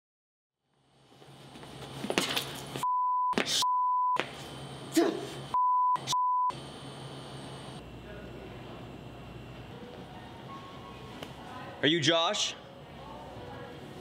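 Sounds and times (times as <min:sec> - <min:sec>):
censor bleep tone: 0:02.8 - 0:04.2, 0:05.6 - 0:06.6.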